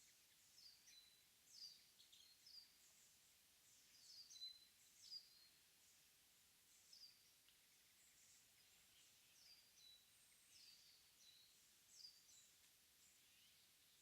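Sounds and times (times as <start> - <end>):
soft steady hiss: 0.0 - 14.0
small birds calling: 6.7 - 14.0.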